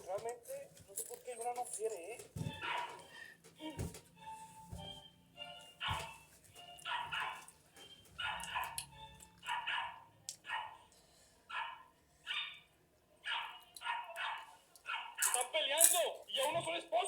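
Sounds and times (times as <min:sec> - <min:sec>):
dog barking: 0:02.5 - 0:03.1, 0:05.8 - 0:06.2, 0:06.8 - 0:07.5, 0:08.2 - 0:10.9, 0:11.5 - 0:15.3.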